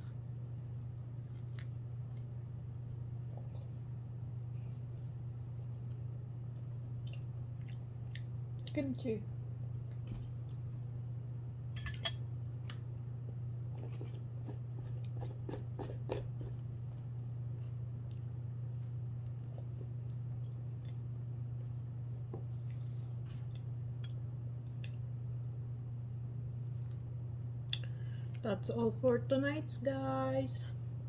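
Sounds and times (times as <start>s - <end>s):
chewing: 1.3s - 2.4s, 3.0s - 3.8s, 17.6s - 21.0s.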